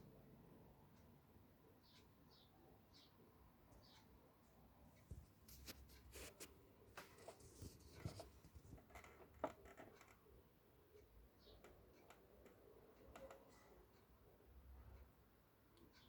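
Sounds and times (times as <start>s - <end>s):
faint clicks and taps: 3.7s - 10.4s, 11.0s - 14.2s.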